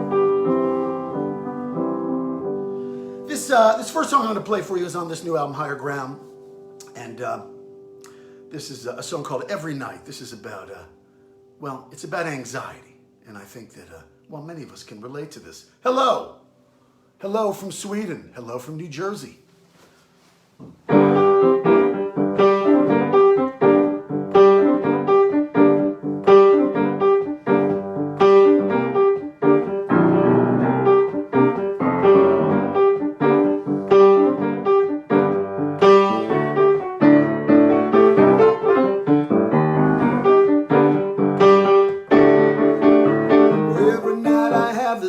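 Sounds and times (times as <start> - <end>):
solo piano chords: 0.0 - 11.7, 20.8 - 45.0.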